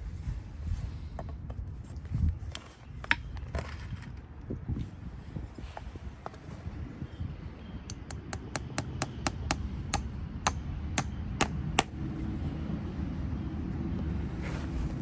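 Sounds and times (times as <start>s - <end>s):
hammer striking metal: 7.9s - 11.9s.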